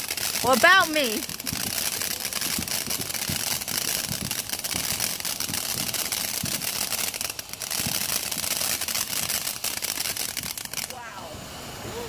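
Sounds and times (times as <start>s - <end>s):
firework crackling and hissing: 0.0s - 12.0s.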